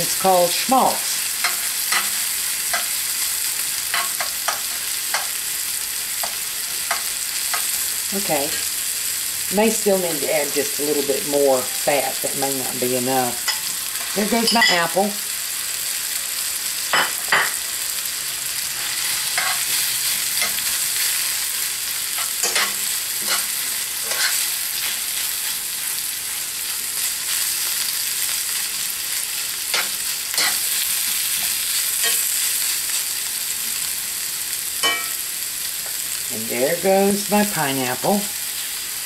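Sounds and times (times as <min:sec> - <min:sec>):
sausage and apple sizzling: 0:00.0 - 0:39.0
spoon scraping a pan: 0:01.3 - 0:05.4, 0:18.7 - 0:25.6, 0:29.1 - 0:32.6.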